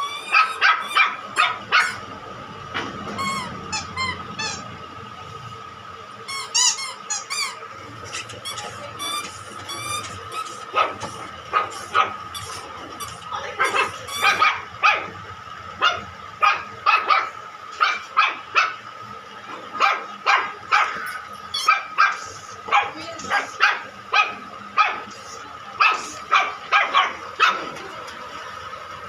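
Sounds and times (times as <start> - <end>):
small dog yipping: 0.0 - 2.0, 11.6 - 15.0, 19.8 - 25.0.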